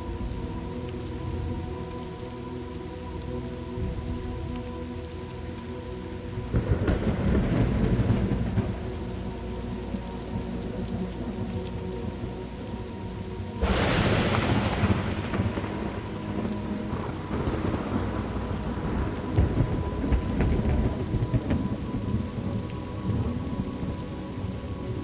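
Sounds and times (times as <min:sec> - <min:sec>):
steady rain falling: 0:00.0 - 0:25.0
rumbling thunderclap: 0:06.5 - 0:09.1, 0:13.6 - 0:24.0.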